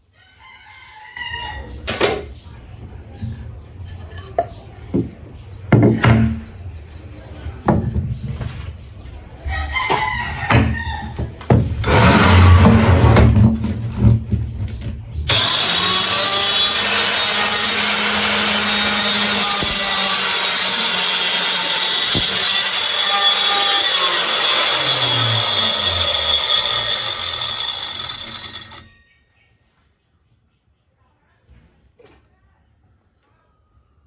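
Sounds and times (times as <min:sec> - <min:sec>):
circular saw cutting wood: 0:11.8 - 0:13.4, 0:15.3 - 0:28.9.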